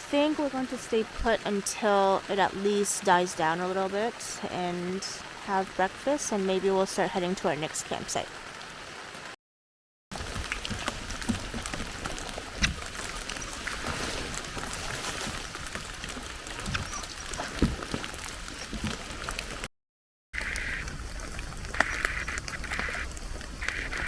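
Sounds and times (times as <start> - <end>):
rain on a tent: 3.8 - 9.4, 10.1 - 19.7, 20.4 - 24.0.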